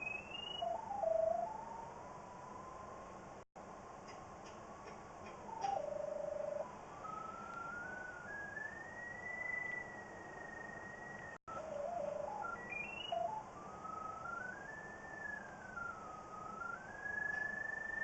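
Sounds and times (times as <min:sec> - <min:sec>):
pipe locator electronic tone: 0:05.6 - 0:06.7, 0:08.0 - 0:13.5.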